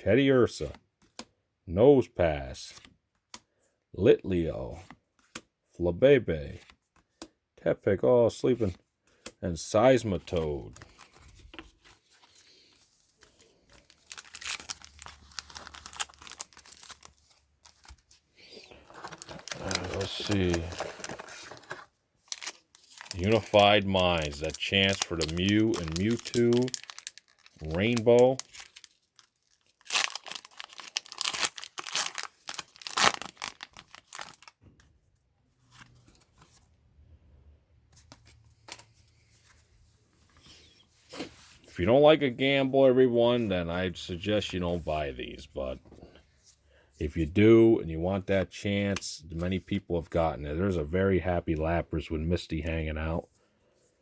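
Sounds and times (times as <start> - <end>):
handling sounds: 10.0 - 34.5
foil wrapper crinkling and tearing: 13.4 - 34.6.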